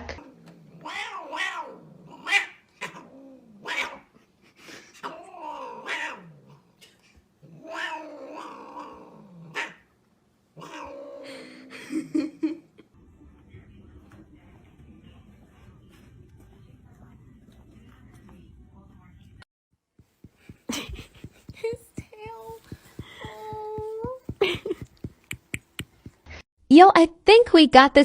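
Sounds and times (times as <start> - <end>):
cat meowing and yowling: 0.8 - 2.5.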